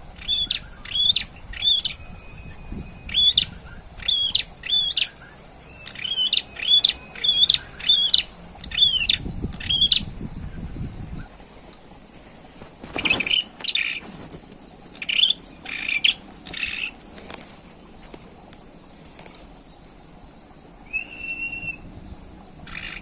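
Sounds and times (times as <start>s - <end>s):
bird whistling sharp notes: 0.2s - 10.1s, 20.9s - 21.8s.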